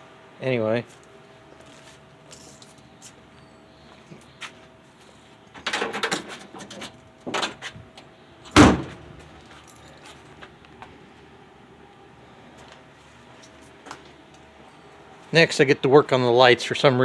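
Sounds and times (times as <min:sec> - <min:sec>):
heavy slam: 0:08.6 - 0:09.0.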